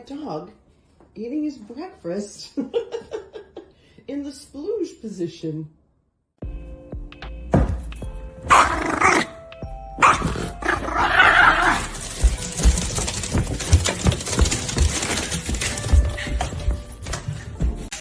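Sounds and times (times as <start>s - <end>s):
music: 6.4s - 18.0s
dog barking: 8.5s - 9.4s, 10.0s - 12.0s.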